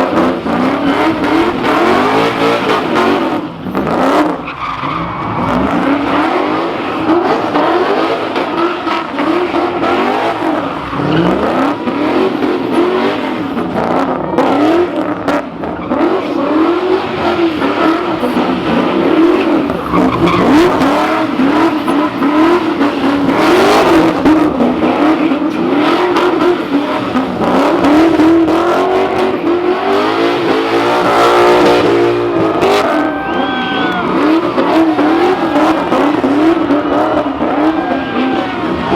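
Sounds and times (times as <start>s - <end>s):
car engine at high revs: 0.0s - 38.9s
tyres squealing: 17.1s - 31.7s.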